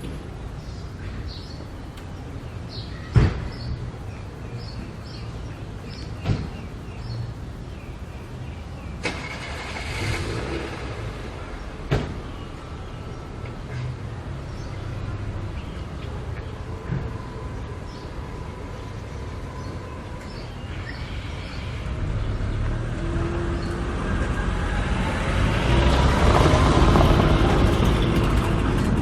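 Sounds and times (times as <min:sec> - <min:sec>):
road traffic rumble: 0:00.0 - 0:29.0
vehicle passing with whine: 0:09.0 - 0:11.9, 0:21.6 - 0:29.0.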